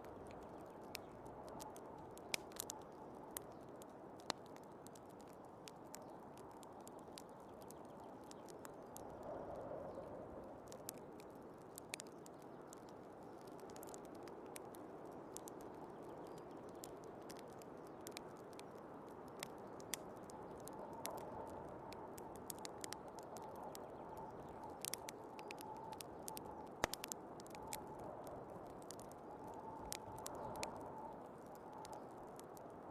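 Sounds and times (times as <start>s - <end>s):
wood fire crackling: 0.0s - 32.9s
wind whistling: 9.0s - 11.6s, 20.2s - 32.9s.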